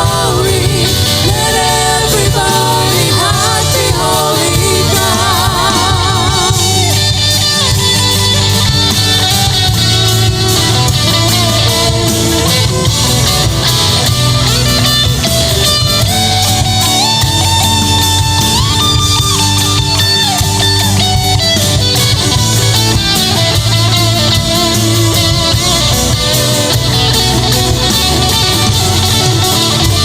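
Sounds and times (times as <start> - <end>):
person singing with vibrato: 0.0 - 7.2
band playing guitar and bass: 0.0 - 30.0.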